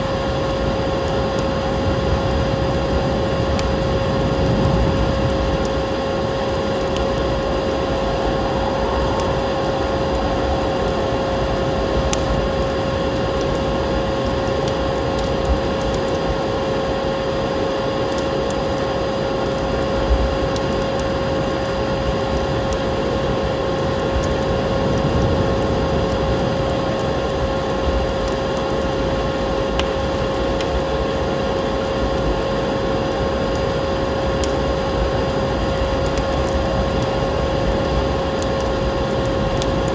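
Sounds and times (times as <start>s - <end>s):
constant hum: 0.0s - 39.9s
wood fire crackling: 0.0s - 39.9s
fire popping: 0.2s - 39.9s.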